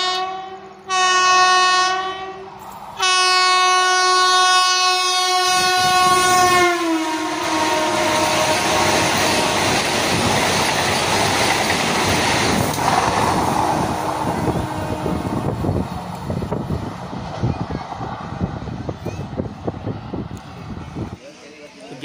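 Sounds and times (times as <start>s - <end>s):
train horn: 0.0s - 9.8s, 13.8s - 15.7s
train rushing by: 0.0s - 21.6s.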